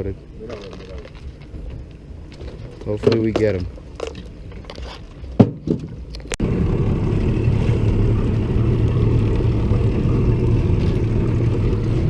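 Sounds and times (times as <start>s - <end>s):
outboard motor running: 6.3s - 12.0s.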